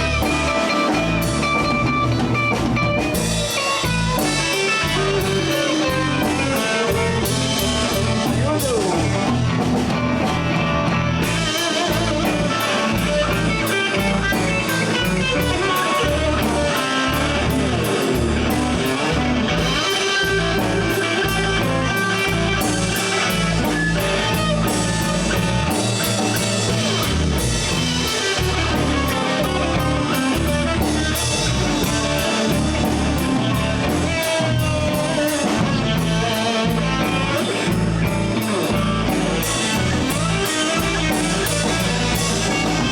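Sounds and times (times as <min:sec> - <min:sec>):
blues band playing: 0:00.0 - 0:42.9
electric guitar soloing: 0:00.0 - 0:42.9.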